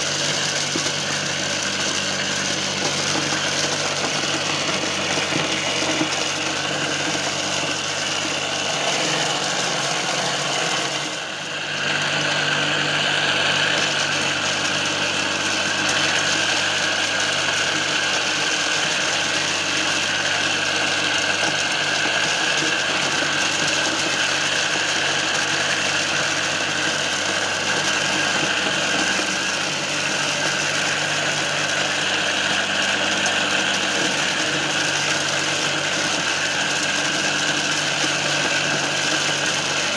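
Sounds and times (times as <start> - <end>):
electric motor whirring: 0.0 - 39.9.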